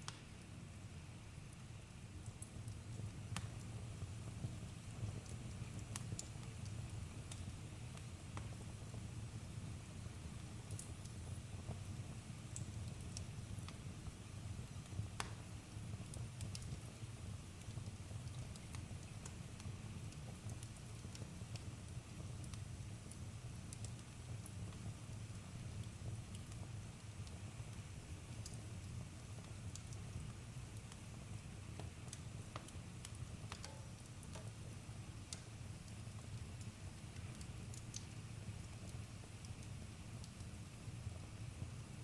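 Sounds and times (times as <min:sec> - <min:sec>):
fire low rumble: 0:00.1 - 0:42.0
campfire crackling: 0:02.2 - 0:42.0.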